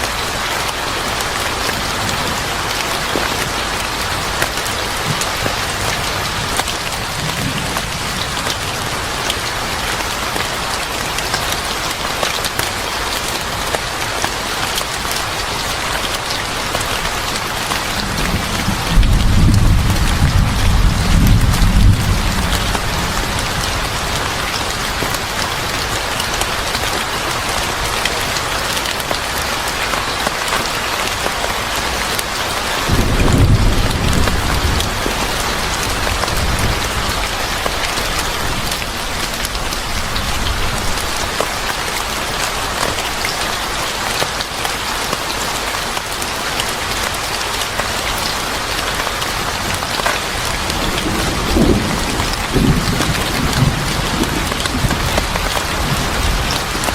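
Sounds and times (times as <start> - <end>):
heavy rain falling: 0.0 - 56.9
low rumble of thunder: 5.0 - 9.7, 17.9 - 24.6, 32.8 - 38.7, 50.5 - 56.8.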